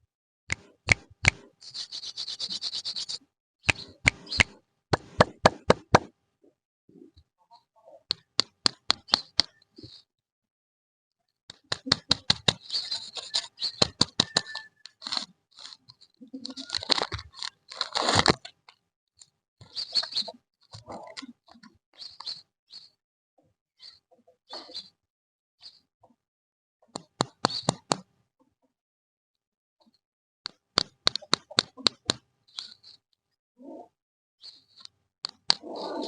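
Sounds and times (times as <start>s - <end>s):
sharp clicks and taps: 0.5s - 1.5s, 3.7s - 6.1s, 8.1s - 9.6s, 11.5s - 12.7s, 13.3s - 15.8s, 30.5s - 32.7s
plastic wrappers crinkling: 16.4s - 18.4s.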